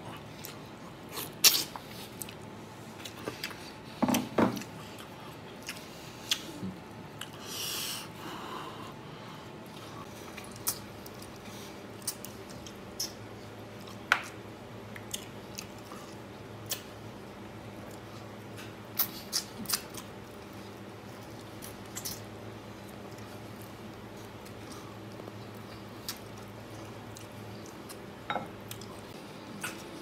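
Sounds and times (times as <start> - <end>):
steady low hum: 0.0 - 30.0
person chewing and gnawing: 0.1 - 3.7, 22.9 - 30.0.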